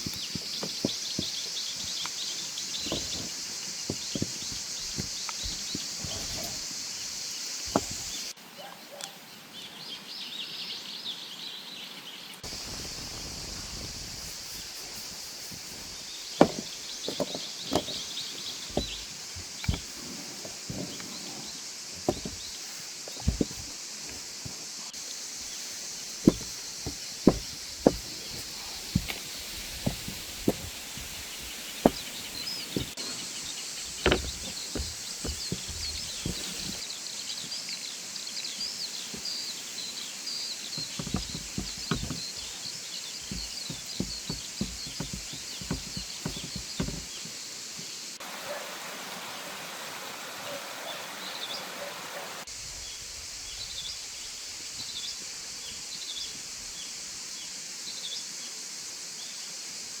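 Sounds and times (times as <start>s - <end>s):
small birds chirping: 0.0s - 48.2s
outdoor hiss: 0.0s - 60.0s
sharp clicks and knocks: 16.4s - 18.1s, 26.2s - 29.2s, 33.9s - 36.8s, 40.8s - 42.6s.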